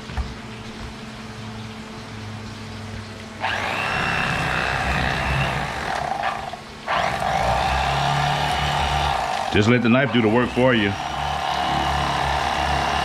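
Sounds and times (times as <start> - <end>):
electric knife motor buzzing: 3.4 - 13.0.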